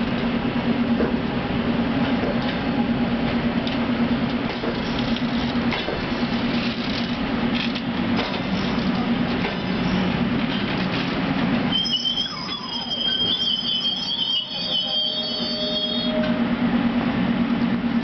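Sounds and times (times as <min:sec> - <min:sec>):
train rolling with low rumble: 0:00.0 - 0:18.0
train brakes squealing: 0:11.7 - 0:16.5.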